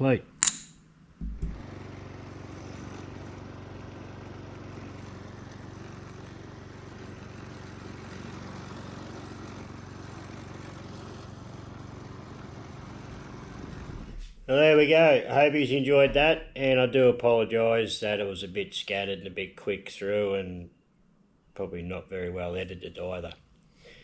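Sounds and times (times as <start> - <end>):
small engine running: 1.2 - 14.3.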